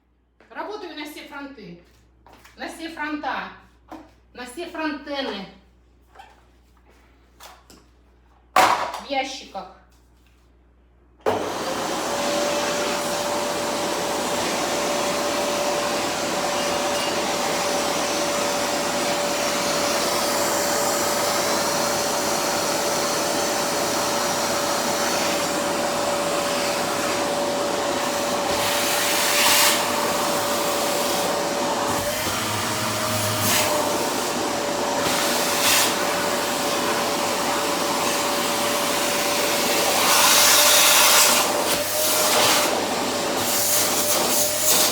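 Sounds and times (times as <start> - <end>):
vacuum cleaner motor whine: 11.2 - 44.9.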